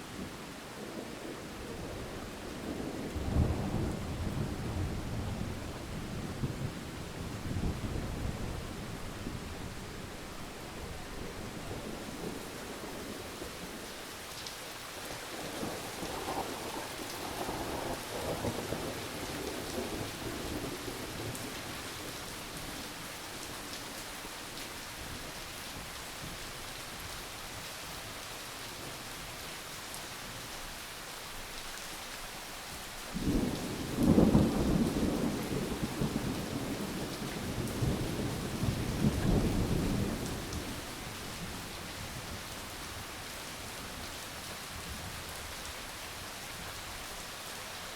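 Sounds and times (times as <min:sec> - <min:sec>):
steady rain falling: 0:00.0 - 0:47.9
rolling thunder: 0:33.2 - 0:40.8.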